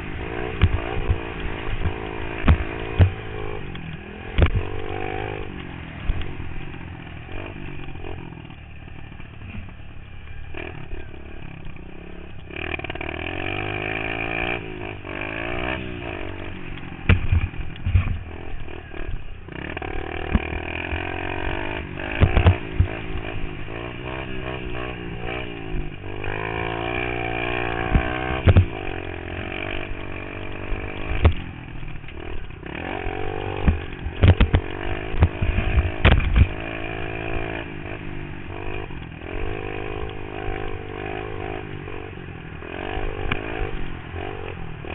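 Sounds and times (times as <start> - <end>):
pit bike engine revving: 0.0 - 44.9
sharp knocks and thuds: 0.6 - 3.3, 17.0 - 18.2, 22.2 - 22.9, 27.9 - 28.7, 33.6 - 36.6.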